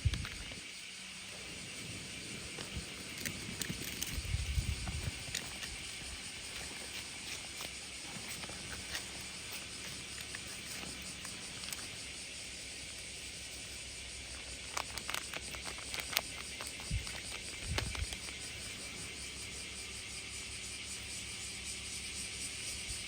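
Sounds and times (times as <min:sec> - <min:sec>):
clicks and rustles: 0:00.0 - 0:00.7, 0:01.6 - 0:12.2, 0:12.8 - 0:19.0
high-pitched hiss: 0:00.0 - 0:23.0.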